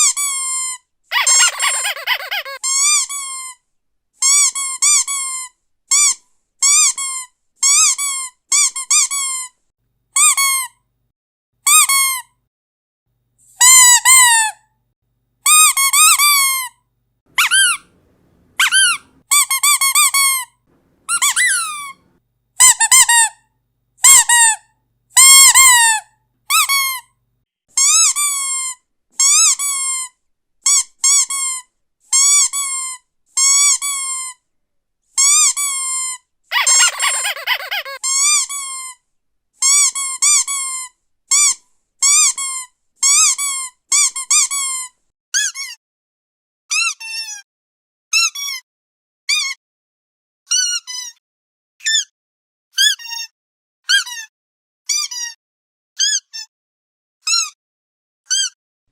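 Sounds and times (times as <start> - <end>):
squeaky dog toy squeaking: 0.0 - 9.6, 10.2 - 10.8, 11.6 - 12.4, 13.5 - 14.7, 15.4 - 34.5, 35.1 - 39.0, 39.6 - 45.8, 46.7 - 47.4, 48.1 - 48.6, 49.3 - 49.6, 50.5 - 51.2, 51.8 - 52.1, 52.8 - 53.3, 53.9 - 54.3, 54.9 - 55.4, 56.0 - 56.5, 57.2 - 57.6, 58.3 - 58.6.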